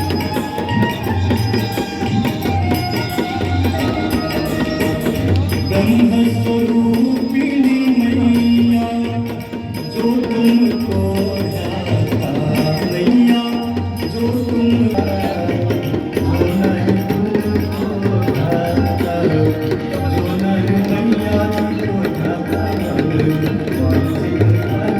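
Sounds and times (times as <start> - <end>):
tabla-like drums: 0.0 - 24.9
devotional chant-like singing: 5.2 - 24.9.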